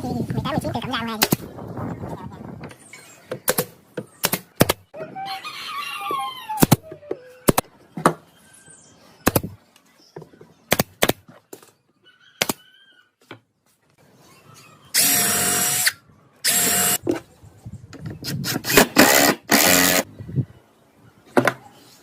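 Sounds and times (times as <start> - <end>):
rooster crowing: 5.0 - 6.6.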